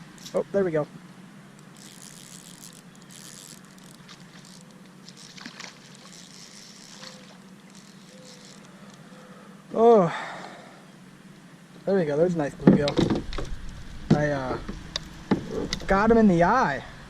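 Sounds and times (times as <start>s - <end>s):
small clicks: 1.6s - 9.1s
rustling: 1.6s - 9.2s
water splashing: 1.8s - 8.6s.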